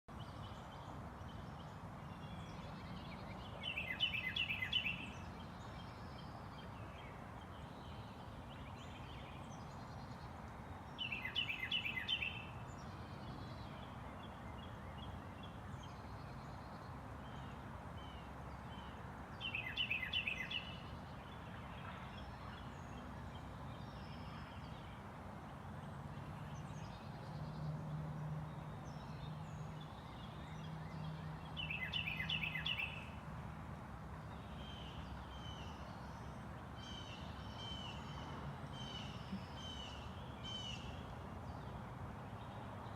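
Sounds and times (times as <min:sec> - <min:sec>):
outdoor background hiss: 0:00.1 - 0:42.9
songbird trilling: 0:03.6 - 0:05.2, 0:11.0 - 0:12.6, 0:19.4 - 0:20.9, 0:31.6 - 0:33.1.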